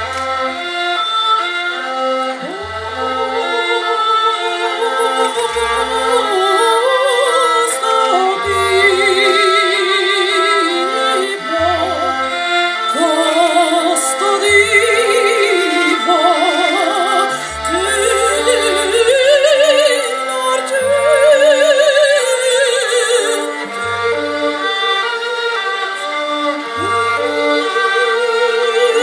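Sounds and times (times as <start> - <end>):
operatic singing: 0.0 - 29.0
orchestra playing: 0.0 - 29.0.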